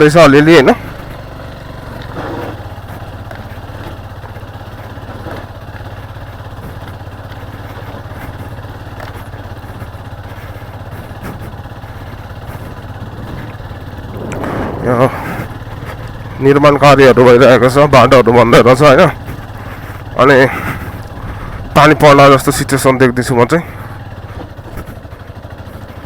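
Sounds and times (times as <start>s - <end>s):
motorcycle engine at low revs: 0.0s - 26.0s.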